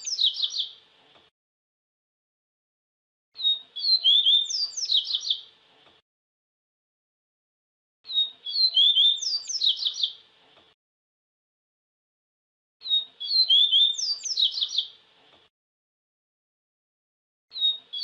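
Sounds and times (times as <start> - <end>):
seedeater bird singing whistled notes: 0.0 - 0.8, 3.4 - 5.5, 8.1 - 10.2, 12.8 - 15.0, 17.5 - 18.0.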